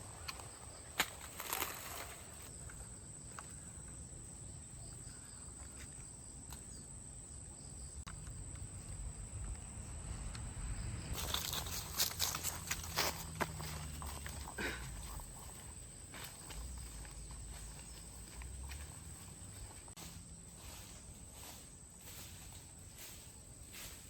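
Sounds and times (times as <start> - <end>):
rustling and crackling: 0.0 - 3.6, 11.1 - 24.0
high insect drone: 0.0 - 24.0.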